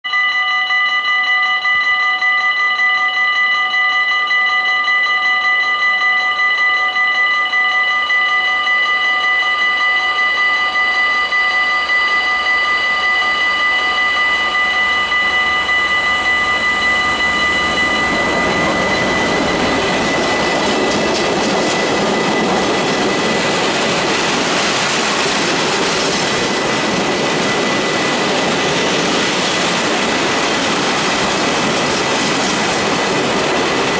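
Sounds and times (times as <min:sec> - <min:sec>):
locomotive steady high tones: 0:00.0 - 0:33.9
train rumbling and rattling past: 0:09.1 - 0:33.9.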